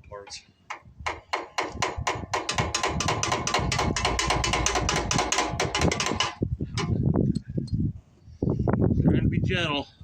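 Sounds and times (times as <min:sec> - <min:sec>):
ratchet wrench clicking rapidly: 0:01.8 - 0:06.9.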